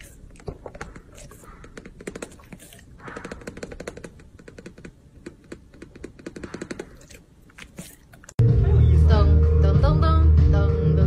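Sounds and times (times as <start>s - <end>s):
dog breath: 0.0s - 4.0s
dog licking and lip smacking: 6.8s - 8.4s.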